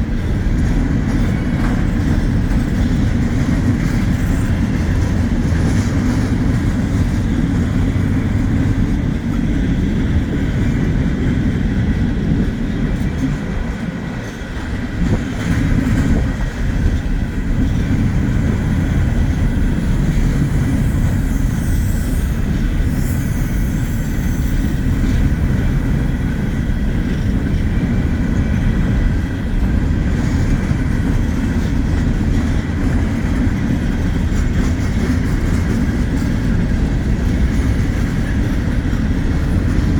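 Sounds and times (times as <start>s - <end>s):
freight train rumbling on rails: 0.0s - 39.9s
faint high wheel squeals: 20.1s - 25.0s.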